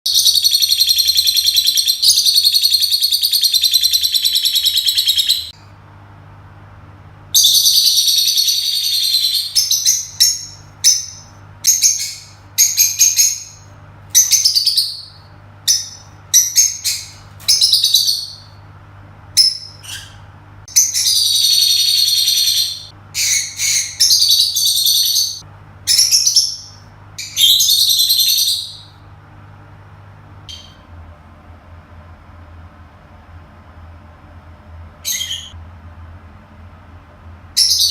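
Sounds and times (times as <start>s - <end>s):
lovebirds chirping: 0.1s - 5.5s, 19.4s - 29.0s.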